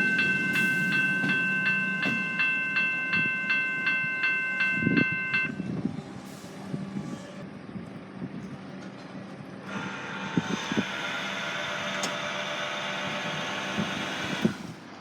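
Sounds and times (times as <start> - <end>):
level-crossing warning bell ringing: 0.0 - 5.8
low rumble of train: 0.0 - 15.0.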